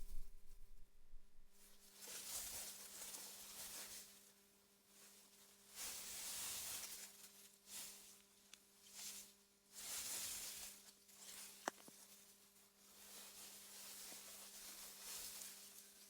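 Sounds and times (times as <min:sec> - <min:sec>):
faint low hum: 0:00.0 - 0:01.9.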